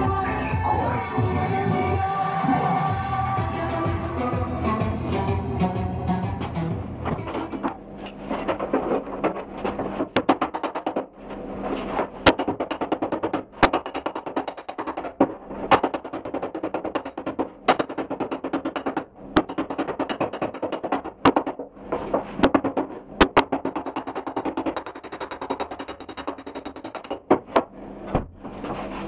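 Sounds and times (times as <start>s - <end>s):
hammer tapping sheet metal: 7.1s - 11.2s, 11.9s - 27.7s.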